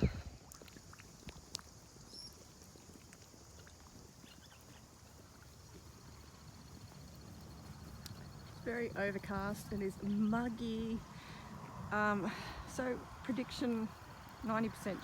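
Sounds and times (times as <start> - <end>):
wind rumble on microphone: 0.0 - 0.4
faint bird chirps: 2.0 - 2.4.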